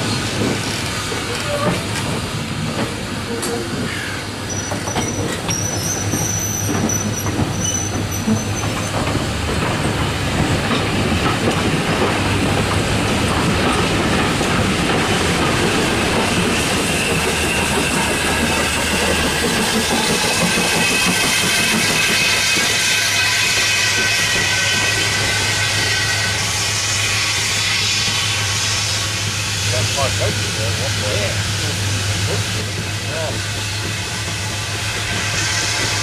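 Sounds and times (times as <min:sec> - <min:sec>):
train wheels clacking over rail joints: 0:00.0 - 0:36.0
wheel flanges squealing: 0:04.0 - 0:09.3.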